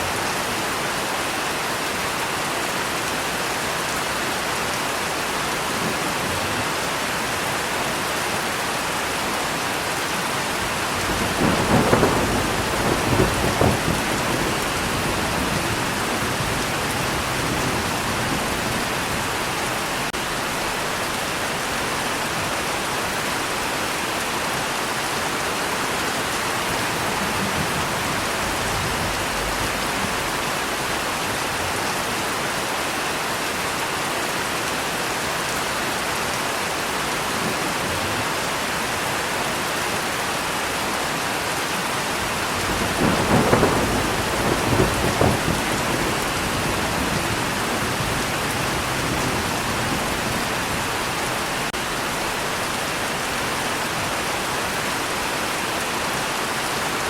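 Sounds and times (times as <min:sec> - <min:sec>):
steady rain falling: 0:00.0 - 0:57.0
thunder rumbling: 0:10.6 - 0:21.2, 0:26.2 - 0:31.4, 0:42.2 - 0:52.2.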